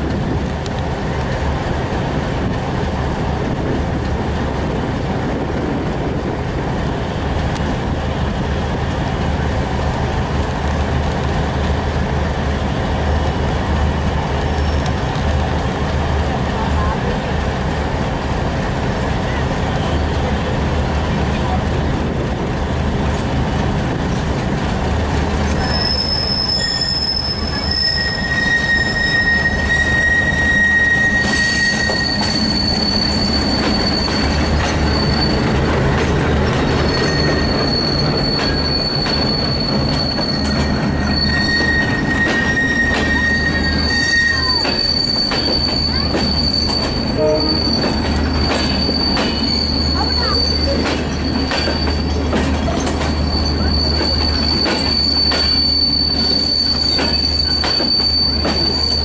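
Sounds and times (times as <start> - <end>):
wheels clacking over rail joints: 21.0 - 59.0
wheel flanges squealing: 25.4 - 59.0.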